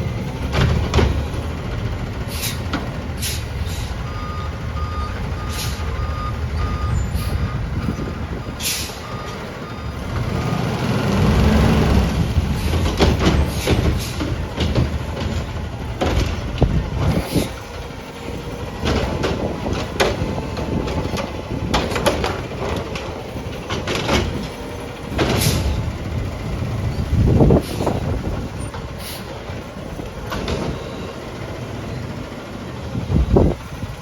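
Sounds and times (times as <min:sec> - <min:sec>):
garbage truck engine running: 0:00.0 - 0:34.0
sharp knocks and clanks: 0:00.4 - 0:01.5, 0:12.5 - 0:17.6, 0:18.7 - 0:25.8, 0:30.2 - 0:31.1.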